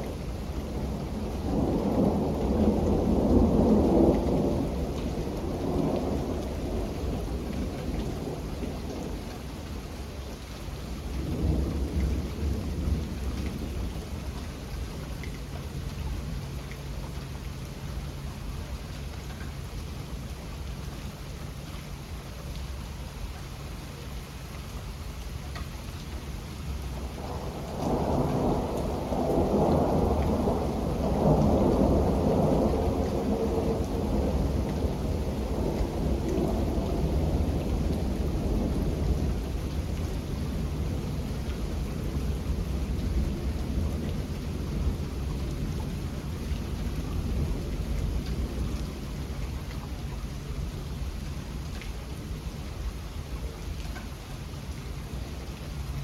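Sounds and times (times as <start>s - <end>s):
thunder rumbling: 0.0s - 10.2s, 10.9s - 14.4s, 26.6s - 53.5s
steady rain: 0.0s - 56.0s.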